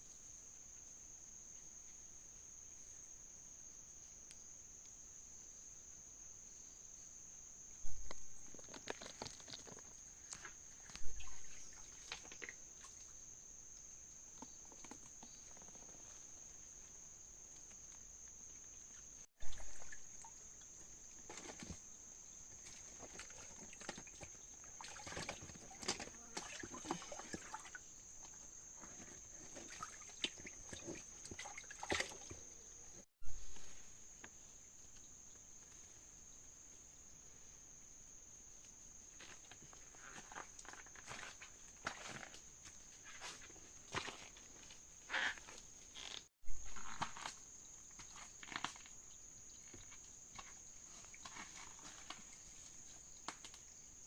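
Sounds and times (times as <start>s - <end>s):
high-pitched insect chorus: 0.0s - 54.0s
water splashing and trickling: 7.9s - 17.0s, 18.4s - 33.9s, 46.6s - 53.9s.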